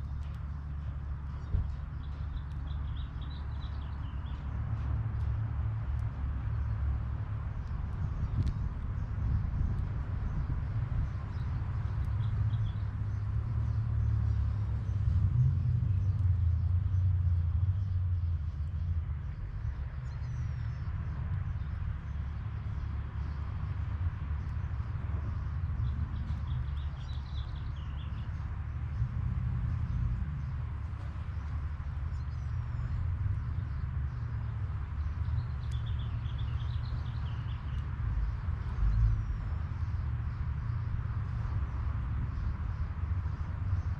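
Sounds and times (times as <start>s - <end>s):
steady low rumble: 0.0s - 43.9s
bird chirping: 25.3s - 28.5s, 30.0s - 39.2s.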